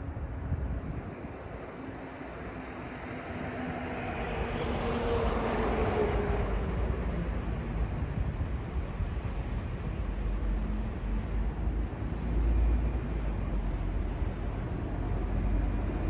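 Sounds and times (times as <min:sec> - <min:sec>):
city background noise: 0:00.0 - 0:16.0.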